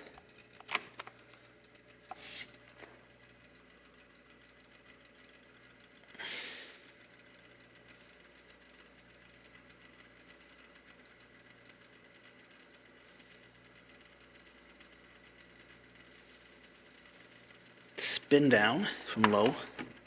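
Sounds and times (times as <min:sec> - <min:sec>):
table fan running: 0:00.0 - 0:20.0.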